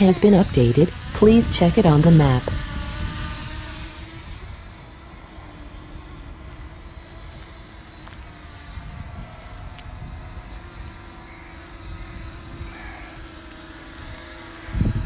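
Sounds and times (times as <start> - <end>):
drone propellers humming: 0.0 - 15.0
wind buffeting microphone: 2.4 - 5.0, 14.6 - 15.0.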